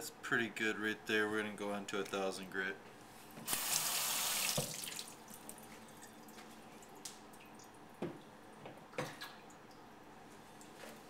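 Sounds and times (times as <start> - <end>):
water dripping: 4.4 - 9.9.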